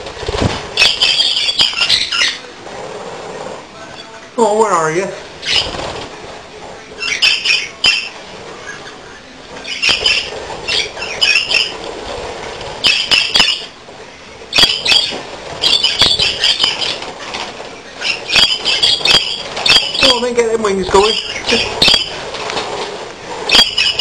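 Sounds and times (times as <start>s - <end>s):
budgerigars chirping and squawking: 0.8s - 2.4s, 5.4s - 6.0s, 7.0s - 11.9s, 12.8s - 13.7s, 14.5s - 17.4s, 18.0s - 22.5s, 23.5s - 24.0s.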